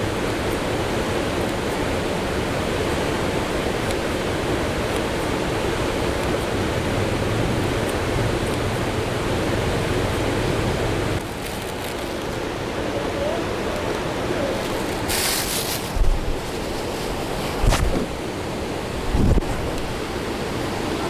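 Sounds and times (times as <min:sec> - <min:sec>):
rushing wind and water: 0:00.0 - 0:21.0
sharp hiss: 0:14.8 - 0:18.1
wind buffeting microphone: 0:15.8 - 0:20.0.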